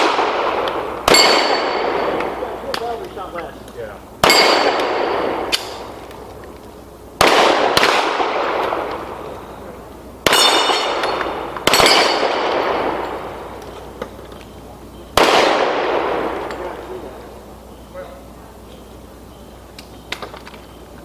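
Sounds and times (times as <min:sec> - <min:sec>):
pistol shots with echo: 0:00.0 - 0:03.6, 0:04.2 - 0:06.4, 0:07.2 - 0:14.2, 0:15.1 - 0:17.4
struck steel plate ringing: 0:01.0 - 0:03.0, 0:04.2 - 0:05.9, 0:10.2 - 0:13.4.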